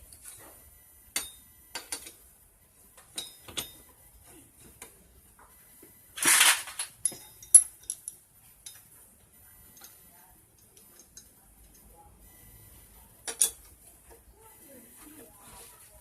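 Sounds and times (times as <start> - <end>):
metal tools clinking: 6.2 - 8.8, 13.3 - 13.7.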